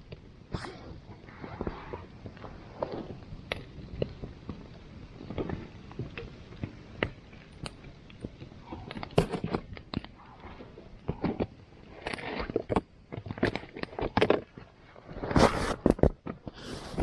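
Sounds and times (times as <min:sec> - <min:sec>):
campfire crackling and popping: 0:00.0 - 0:16.5.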